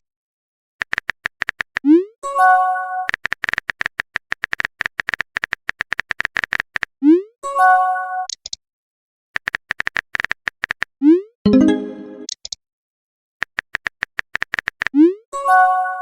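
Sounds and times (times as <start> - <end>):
phone keyboard typing clicks: 0.8 - 1.9, 3.1 - 6.9, 9.4 - 10.9, 13.4 - 14.9
bright chime alert tone: 11.5 - 12.3.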